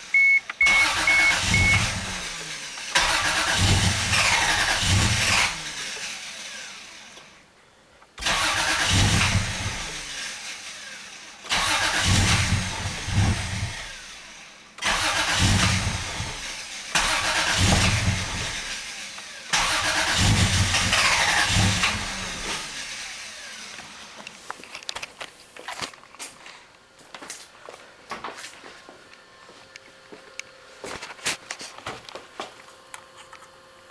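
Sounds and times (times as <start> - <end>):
car engine cranking: 0.0 - 7.3, 8.2 - 25.0.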